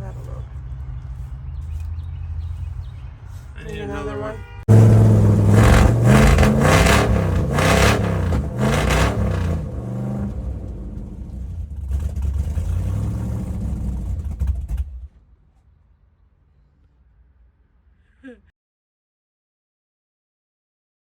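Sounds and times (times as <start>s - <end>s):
truck engine revving: 4.7s - 15.1s.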